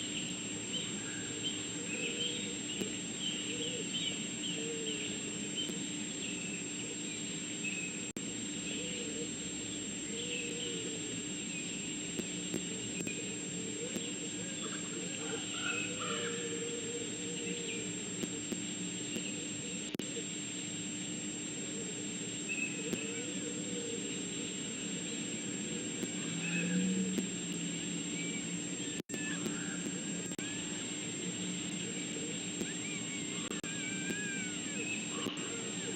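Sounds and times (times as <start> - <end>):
background hum and hiss: 0.0 - 35.9
birds chirping and calling: 0.1 - 8.0, 8.6 - 11.8, 13.0 - 17.9, 28.2 - 35.9.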